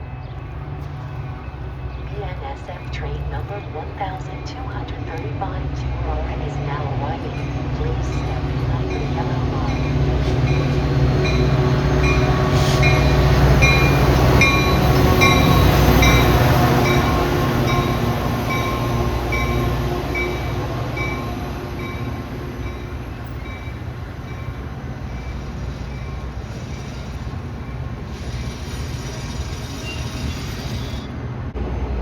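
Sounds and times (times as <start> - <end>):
diesel locomotive rumble: 0.0 - 32.0
bell ringing steadily: 6.1 - 28.1.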